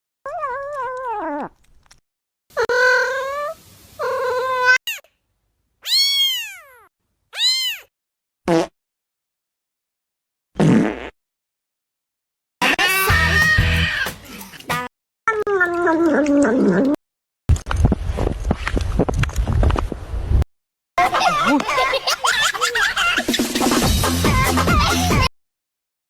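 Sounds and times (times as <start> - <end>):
cartoon cat meows: 2.6 - 5.1, 5.8 - 7.9, 12.6 - 14.1, 15.3 - 16.6.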